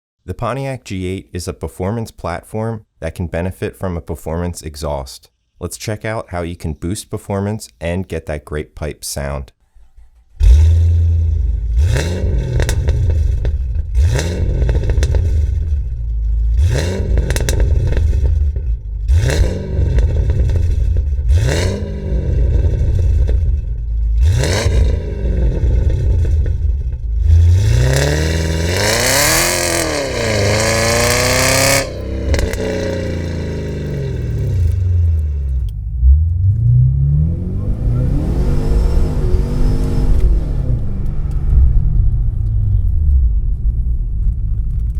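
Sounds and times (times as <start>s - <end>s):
car engine idling and revving: 10.0s - 44.9s.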